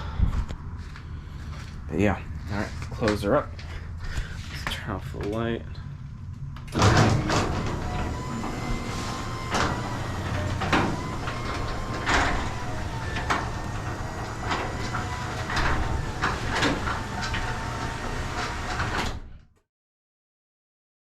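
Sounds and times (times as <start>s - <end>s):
garage door opener motor hum: 6.6s - 19.5s.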